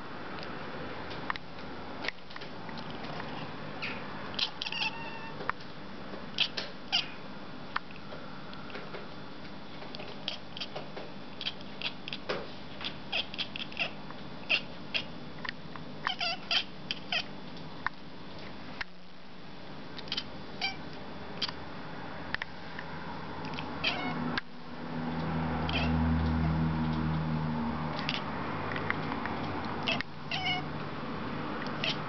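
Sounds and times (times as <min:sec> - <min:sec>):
steady low hum: 0:00.0 - 0:32.0
cat chattering clicks and chirps: 0:03.8 - 0:05.3, 0:06.3 - 0:07.1, 0:10.0 - 0:17.3, 0:20.0 - 0:20.8, 0:21.4 - 0:21.6, 0:23.4 - 0:24.4, 0:25.2 - 0:27.2, 0:27.9 - 0:29.2, 0:29.8 - 0:30.6, 0:31.6 - 0:32.0.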